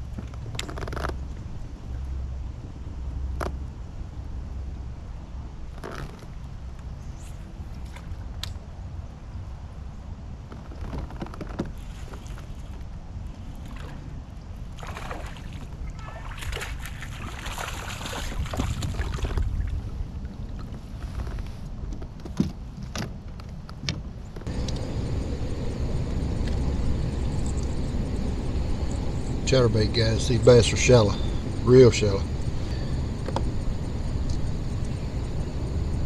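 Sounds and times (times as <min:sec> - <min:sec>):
water sloshing against kayak: 0:11.4 - 0:21.8
wind buffeting microphone: 0:12.8 - 0:22.7, 0:24.0 - 0:36.0.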